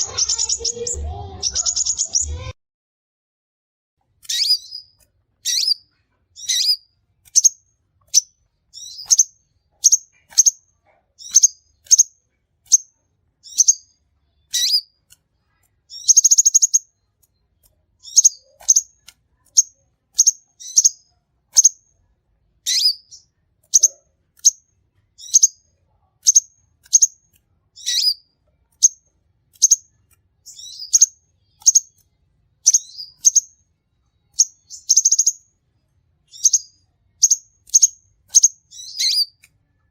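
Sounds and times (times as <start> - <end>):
bird chirping high: 0.0 - 2.6, 4.2 - 15.0, 15.8 - 17.3, 18.0 - 21.9, 22.6 - 27.2, 27.8 - 32.0, 32.6 - 35.6, 36.2 - 39.9
buzzy bird trill: 0.0 - 2.6, 4.2 - 15.0, 15.9 - 17.0, 18.0 - 21.8, 22.6 - 24.6, 25.2 - 25.6, 27.8 - 32.0, 32.6 - 33.6, 34.3 - 35.5, 36.3 - 39.5.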